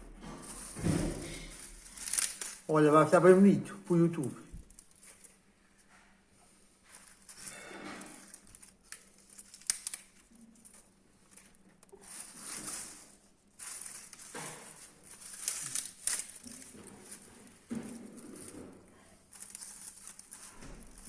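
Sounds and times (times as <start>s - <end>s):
fire crackling: 7.2s - 17.6s.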